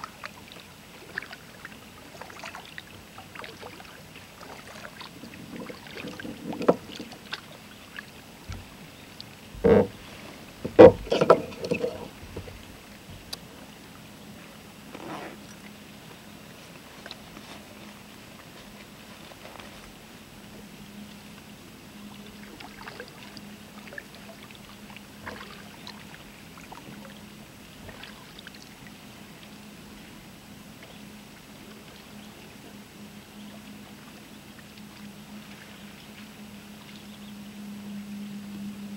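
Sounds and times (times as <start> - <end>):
paddle splashing in water: 0.0 - 13.6, 22.3 - 29.0
faint steady hum: 0.0 - 38.9
knocking: 6.0 - 7.0, 9.6 - 10.0, 10.7 - 12.1.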